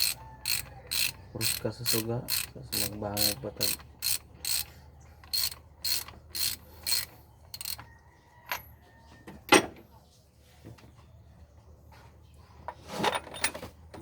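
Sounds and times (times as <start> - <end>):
ratchet wrench clicking: 0.0 - 7.9.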